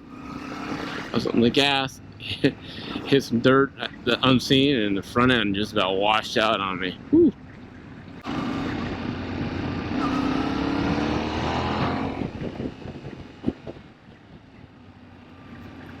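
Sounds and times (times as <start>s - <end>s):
motorcycle engine accelerating: 0.0s - 4.8s, 7.0s - 16.0s
wind noise: 7.0s - 14.8s.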